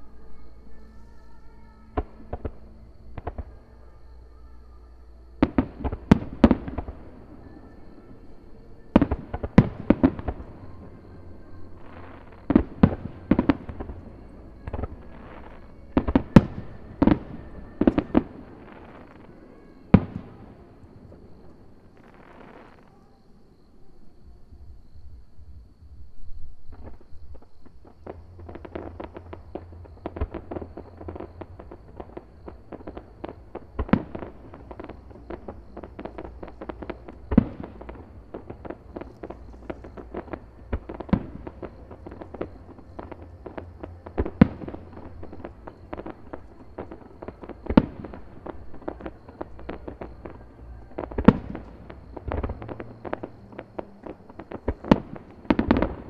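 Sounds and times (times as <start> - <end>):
fireworks popping and crackling: 5.4 - 22.9, 26.6 - 56.0
loud firework bursts: 26.8 - 56.0.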